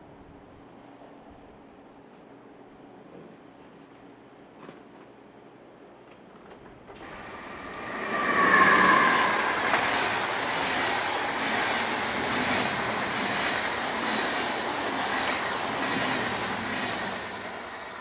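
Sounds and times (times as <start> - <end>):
train passing: 7.0 - 18.0.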